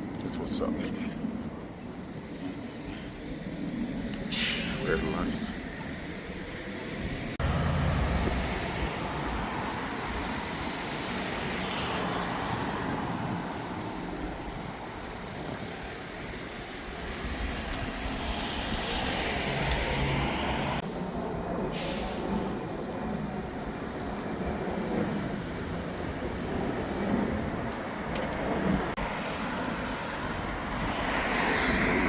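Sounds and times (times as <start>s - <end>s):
cars driving past: 4.2s - 20.8s, 27.1s - 32.0s.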